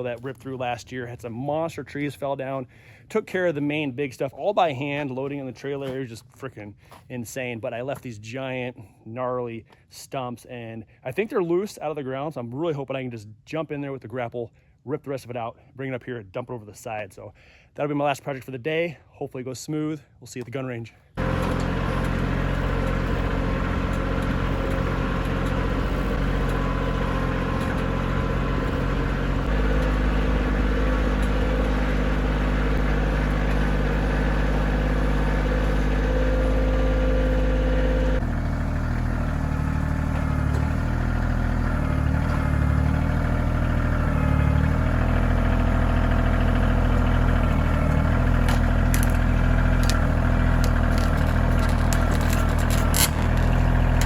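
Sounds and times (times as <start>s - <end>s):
tractor diesel engine running: 21.2s - 54.0s.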